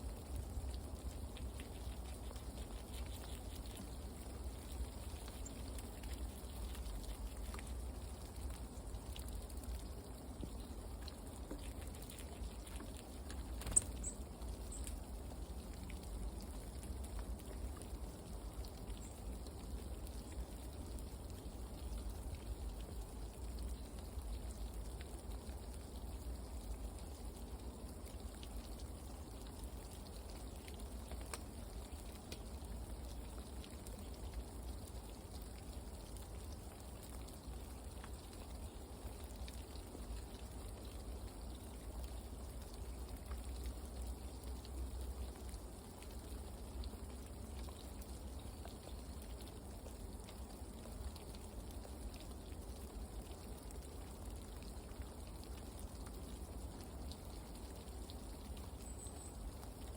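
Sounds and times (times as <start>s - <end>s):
light pattering drops: 10.4s - 15.0s.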